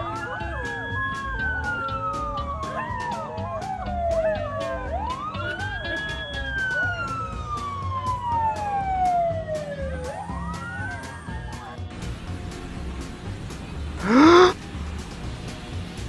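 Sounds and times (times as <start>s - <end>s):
wailing siren-like tone: 0.0s - 11.7s, 14.0s - 14.6s
background music with steady beat: 0.0s - 16.0s.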